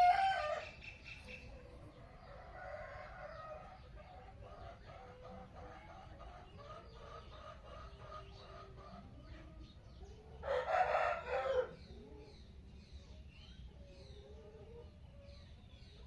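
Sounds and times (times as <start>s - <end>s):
rooster crowing: 0.0s - 0.8s, 10.4s - 11.8s
birds chirping: 0.0s - 16.0s.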